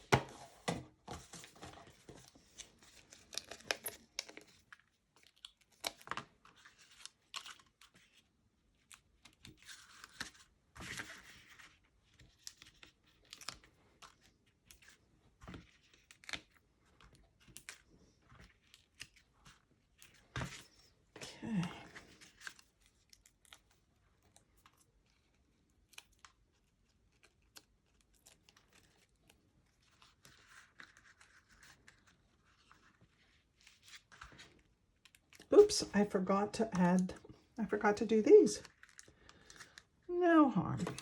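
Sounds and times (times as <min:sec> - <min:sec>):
paper rustling: 0:00.0 - 0:08.3, 0:08.9 - 0:20.9, 0:26.6 - 0:35.9.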